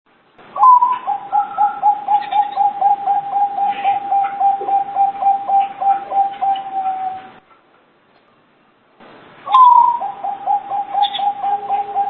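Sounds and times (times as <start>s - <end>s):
dove cooing: 0.6s - 7.4s, 9.5s - 12.0s.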